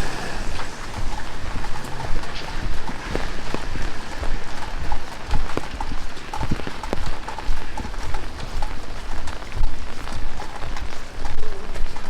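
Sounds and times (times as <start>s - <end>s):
footsteps on wet pavement: 0.0s - 12.0s
heavy rain on a street: 0.0s - 12.0s
rain drop ticks: 0.0s - 12.0s.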